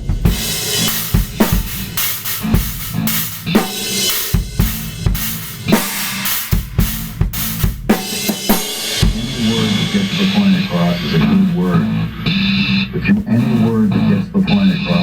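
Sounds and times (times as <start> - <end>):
drum kit groove: 0.0 - 15.0.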